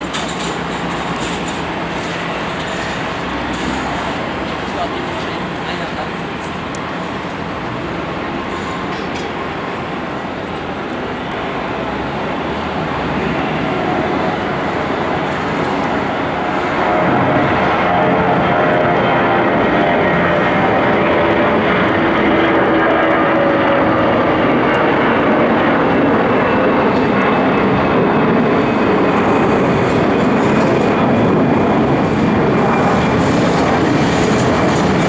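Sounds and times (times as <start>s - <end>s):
jet engines at take-off thrust: 0.0s - 35.0s.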